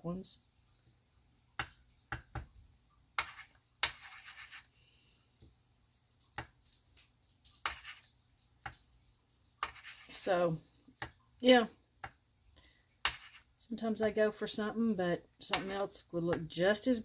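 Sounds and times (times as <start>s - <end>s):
marker scratching on photo paper: 3.2s - 4.7s, 7.6s - 8.8s, 9.6s - 10.4s, 13.0s - 13.5s, 15.5s - 15.9s.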